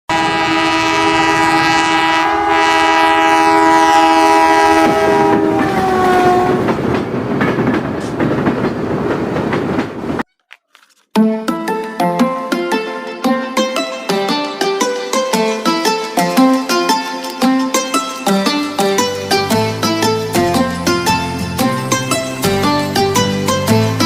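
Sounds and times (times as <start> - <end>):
train horn: 0.1 - 6.8
train rumbling and clattering past: 3.9 - 10.2.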